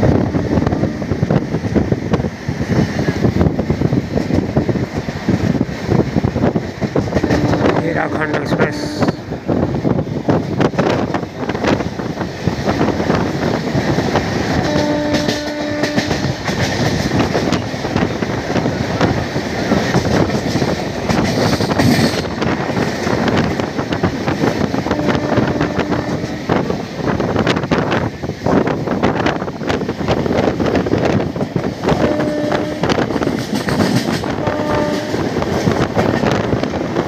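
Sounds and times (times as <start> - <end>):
rushing air: 0.0 - 14.8
train wheels rattling over track: 0.0 - 37.0
train horn: 0.4 - 1.2, 7.2 - 9.2, 14.6 - 16.3, 24.9 - 26.5, 31.9 - 33.1, 34.2 - 35.4.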